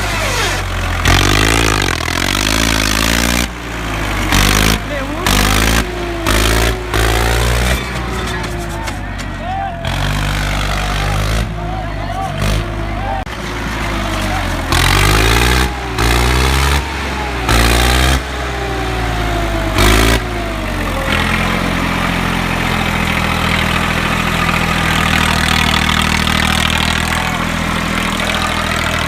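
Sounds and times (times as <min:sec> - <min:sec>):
tractor diesel engine idling: 0:00.0 - 0:29.0.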